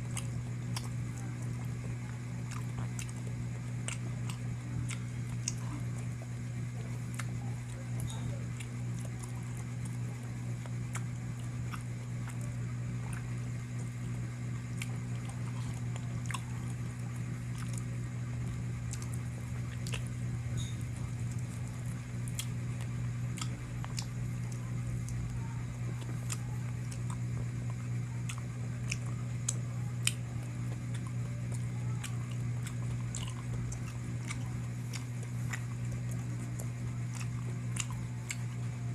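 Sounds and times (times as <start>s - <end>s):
person chewing food: 0.0s - 38.9s
steady low hum: 0.0s - 38.9s
wet mouth sounds: 18.8s - 20.2s, 22.2s - 25.2s, 25.9s - 38.6s.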